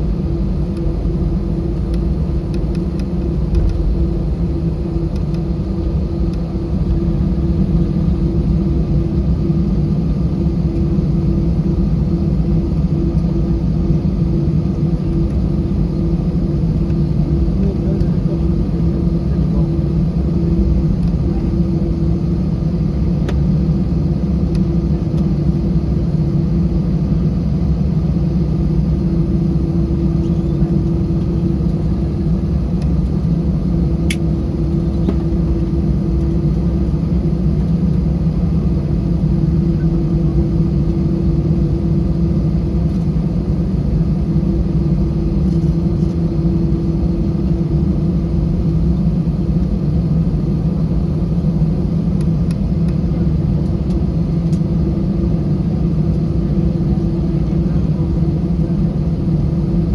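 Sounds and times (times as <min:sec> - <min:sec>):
airliner cabin rumble and hum: 0:00.0 - 0:59.9.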